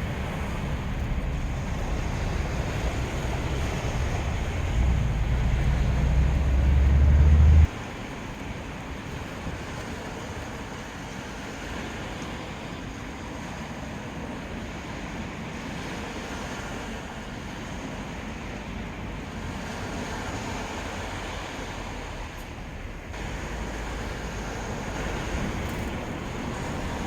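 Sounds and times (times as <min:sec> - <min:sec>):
wind buffeting microphone: 0:00.0 - 0:11.1, 0:23.2 - 0:27.0
surf washing on beach: 0:00.0 - 0:27.0
wind: 0:00.0 - 0:27.0.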